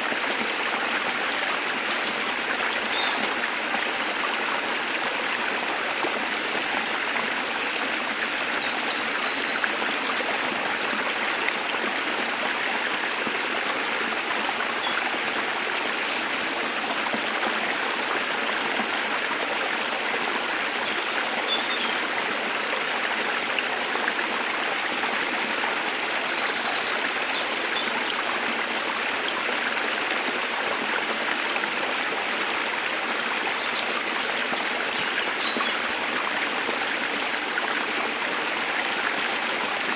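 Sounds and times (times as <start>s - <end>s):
waterfall and stream rushing: 0.0s - 39.9s.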